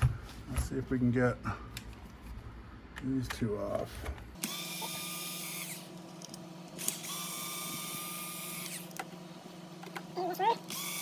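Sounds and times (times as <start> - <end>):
cordless screwdriver running: 4.4 - 5.9, 6.8 - 9.0, 10.7 - 11.0.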